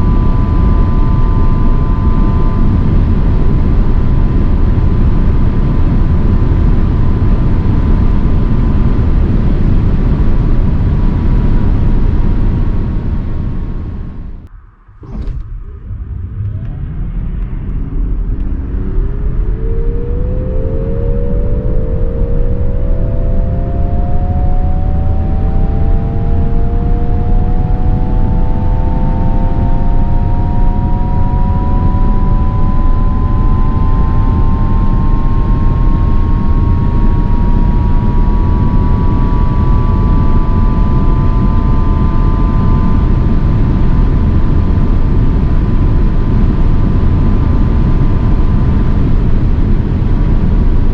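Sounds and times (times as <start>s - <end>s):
electric motor whine: 0.0s - 4.4s, 15.0s - 43.9s
road and wind noise: 0.0s - 50.9s.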